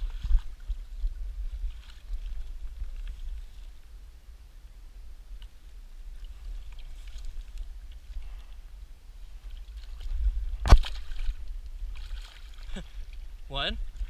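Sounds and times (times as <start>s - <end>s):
low outdoor rumble by river: 0.0s - 14.0s.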